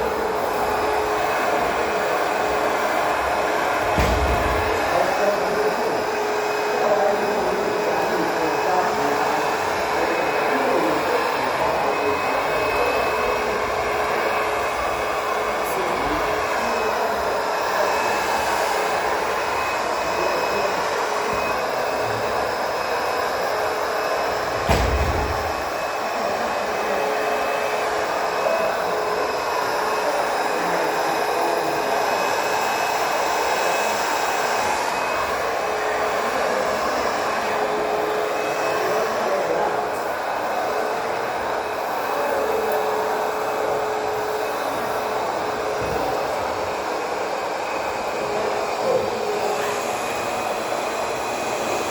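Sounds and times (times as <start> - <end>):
backpack vacuum running: 0.0 - 51.9
single knock: 4.0 - 4.9, 24.6 - 25.6.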